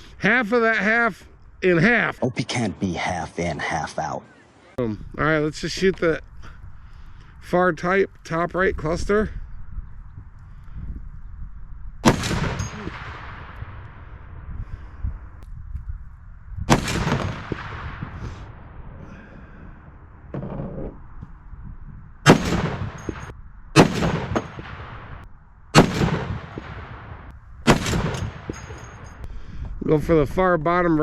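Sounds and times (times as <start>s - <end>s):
rifle shots with ringing echo: 12.0s - 14.4s, 16.7s - 19.1s, 22.2s - 29.3s.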